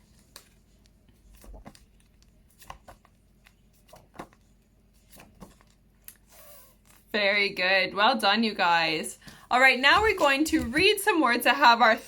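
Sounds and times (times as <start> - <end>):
paper flashcards flipping: 0.0 - 7.1, 9.3 - 11.0.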